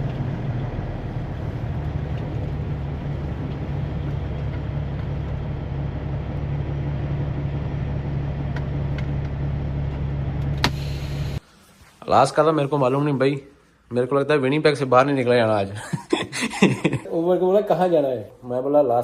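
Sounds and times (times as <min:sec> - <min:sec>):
truck engine droning: 0:00.0 - 0:11.4.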